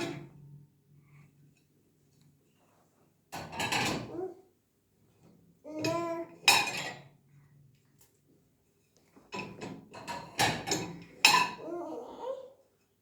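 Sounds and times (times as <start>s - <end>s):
dishes and cutlery clinking: 5.9s - 7.1s, 9.3s - 11.7s.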